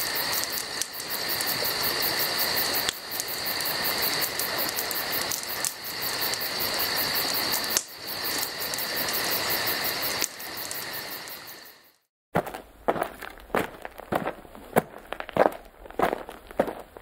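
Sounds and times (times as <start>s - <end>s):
insects chirping: 0.0s - 12.1s
sharp crunching knocks: 12.4s - 17.0s.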